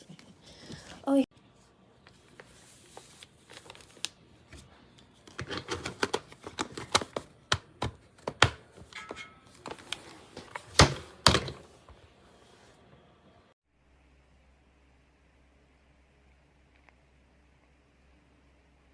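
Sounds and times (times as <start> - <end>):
plastic clicks and knocks: 5.3 - 9.2.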